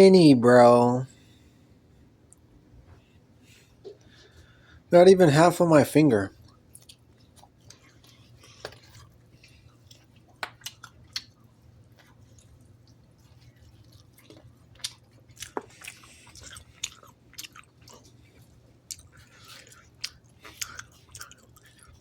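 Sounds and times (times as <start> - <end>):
person chewing: 6.4 - 22.0
wet mouth clicks and smacks: 9.8 - 11.4, 18.9 - 22.0.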